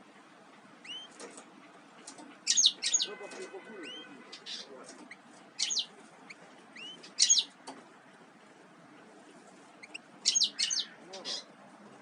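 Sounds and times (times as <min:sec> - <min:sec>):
small songbird chirping: 0:00.8 - 0:01.2, 0:02.4 - 0:03.2, 0:03.8 - 0:07.6, 0:09.8 - 0:11.5.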